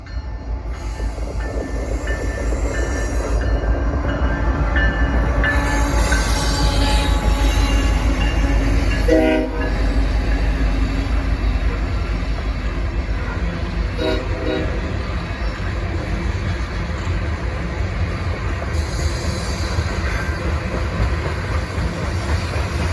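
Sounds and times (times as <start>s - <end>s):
train rumbling by: 0.0s - 22.9s
locomotive horn blast: 5.3s - 10.9s, 13.9s - 15.1s.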